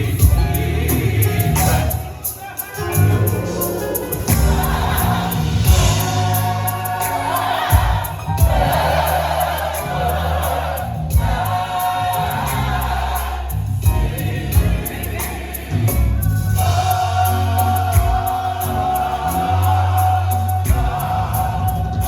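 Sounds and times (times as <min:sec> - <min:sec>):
bass notes: 0:00.0 - 0:02.2, 0:02.8 - 0:22.0
gospel choir singing: 0:00.0 - 0:22.0
live band: 0:00.0 - 0:22.0
drum hits: 0:03.0 - 0:09.0, 0:15.9 - 0:18.5.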